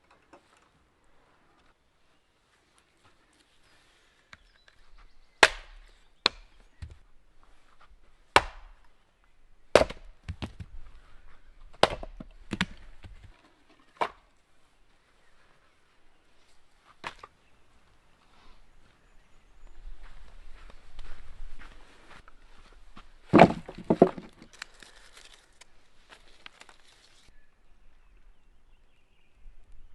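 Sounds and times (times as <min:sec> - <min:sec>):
wood chopping strikes: 0:05.4 - 0:07.0, 0:08.3 - 0:08.9, 0:09.7 - 0:10.8, 0:11.7 - 0:13.3, 0:14.0 - 0:14.2, 0:23.3 - 0:24.5
wood handling noise: 0:09.7 - 0:14.3, 0:23.2 - 0:25.4.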